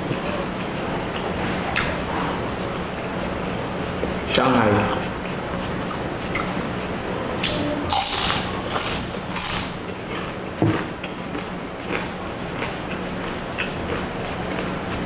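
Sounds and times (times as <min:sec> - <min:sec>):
wet chewing clicks: 0:07.3 - 0:15.0
crunching fried food: 0:07.4 - 0:10.4.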